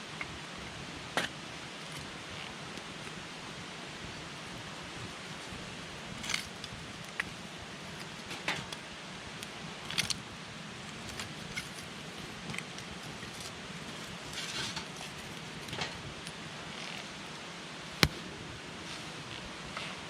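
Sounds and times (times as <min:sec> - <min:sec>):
campfire hissing: 0:00.0 - 0:20.0
burning wood crackling and popping: 0:04.4 - 0:19.7.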